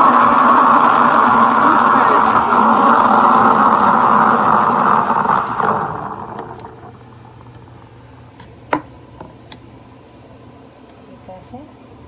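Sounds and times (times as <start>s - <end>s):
steam wand steaming milk: 0.0s - 7.7s.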